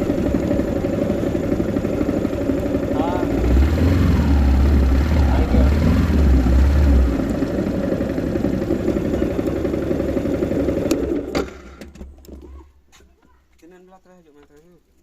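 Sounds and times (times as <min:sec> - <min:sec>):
motorcycle engine idling: 0:00.0 - 0:12.1.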